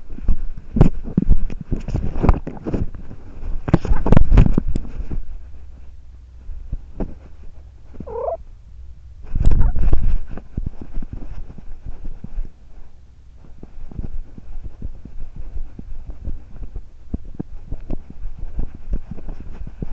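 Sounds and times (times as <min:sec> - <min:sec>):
rubbing and thumping movement: 0:00.0 - 0:08.6, 0:09.2 - 0:19.9
cat purring: 0:06.7 - 0:08.4
short pitched call: 0:08.1 - 0:08.4.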